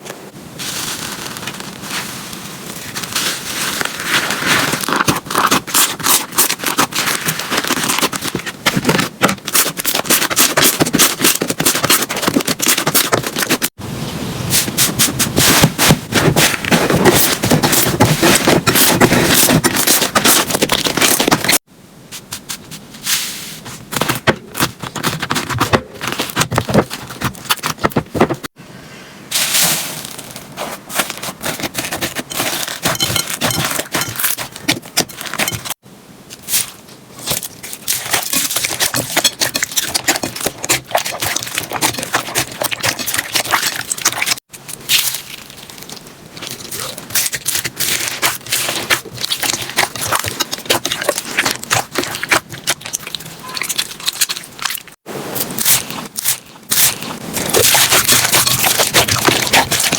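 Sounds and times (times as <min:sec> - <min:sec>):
slime crackling and popping: 0:37.2 - 0:59.9.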